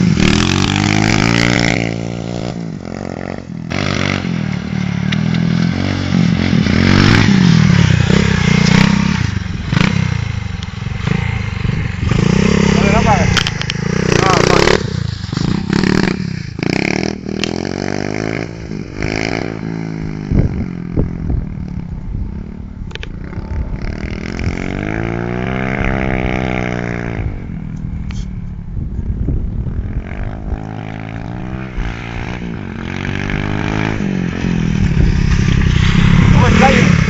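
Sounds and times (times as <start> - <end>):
pit bike engine revving: 0.0 - 21.1, 30.0 - 37.0.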